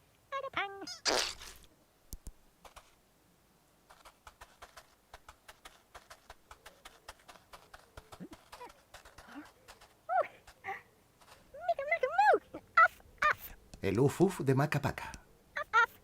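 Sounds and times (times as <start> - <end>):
light cartoon footstep clicks: 3.9 - 10.6.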